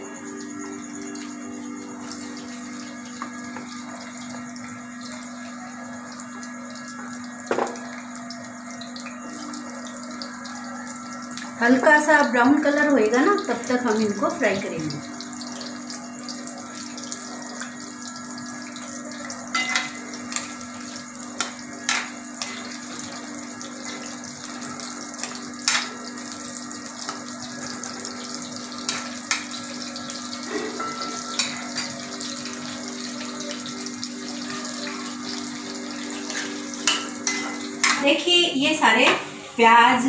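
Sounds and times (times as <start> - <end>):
potatoes sizzling in oil: 0.0 - 40.0
steel spoon clicking on pan: 25.6 - 25.9.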